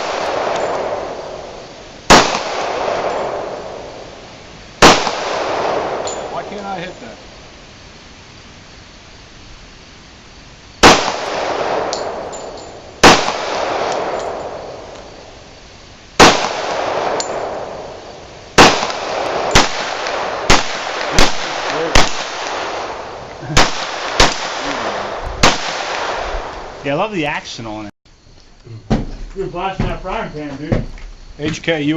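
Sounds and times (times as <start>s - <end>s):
gunshots with echo: 0.0s - 4.1s, 4.8s - 6.8s, 10.8s - 14.9s, 16.2s - 26.8s.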